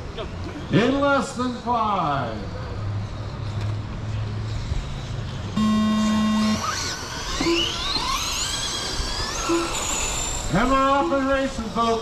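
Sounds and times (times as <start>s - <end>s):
electric motors whining: 5.5s - 12.0s
race start tone: 5.6s - 8.4s.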